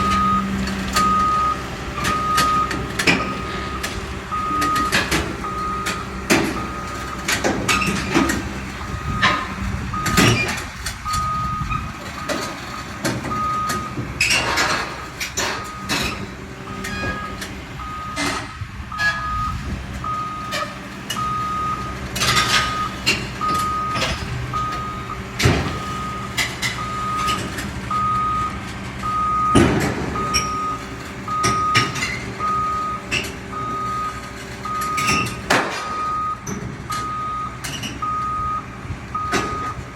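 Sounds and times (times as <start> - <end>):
truck reversing alarm beeping: 0.0 - 39.9
vehicle engine rumble: 0.0 - 39.9
sharp metallic knocks and clanks: 2.0 - 11.2, 12.0 - 19.2, 22.1 - 27.8, 29.5 - 30.6, 34.8 - 38.1, 39.3 - 39.8.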